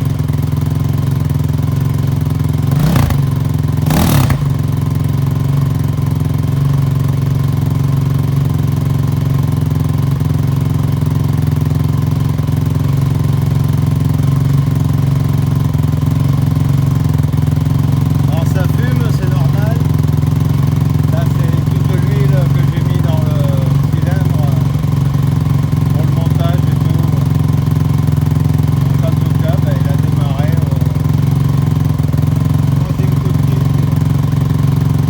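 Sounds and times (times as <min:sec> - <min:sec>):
quad engine idling: 0:00.0 - 0:35.0
engine throttle blips: 0:01.5 - 0:06.0, 0:13.8 - 0:35.0.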